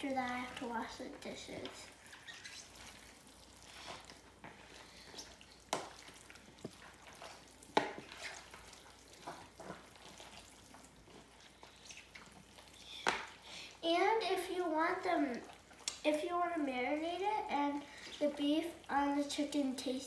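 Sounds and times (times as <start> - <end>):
wet squelching of raw chicken: 0.3 - 13.8.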